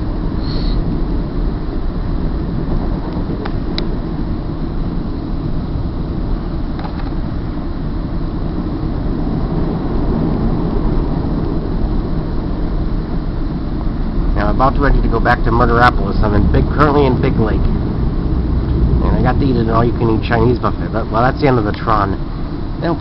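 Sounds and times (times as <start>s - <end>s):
freight train rumbling past: 8.4s - 23.0s.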